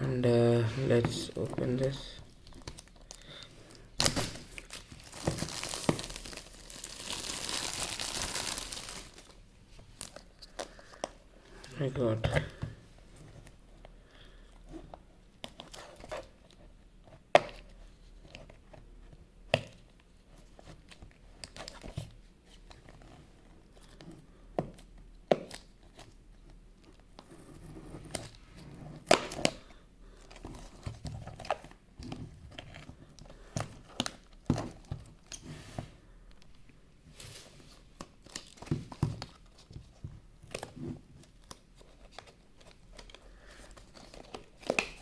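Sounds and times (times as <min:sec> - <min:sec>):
wrapping tearing and crinkling: 0:04.0 - 0:09.4.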